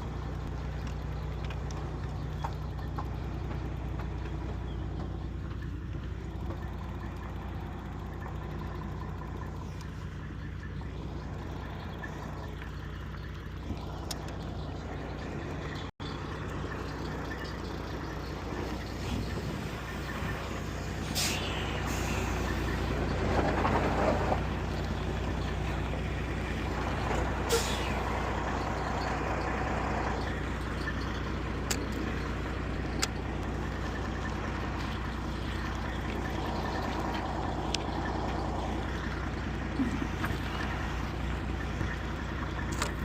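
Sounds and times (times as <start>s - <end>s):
truck diesel engine idling: 0.0s - 43.0s
air brake hisses: 21.0s - 22.5s, 27.5s - 28.1s.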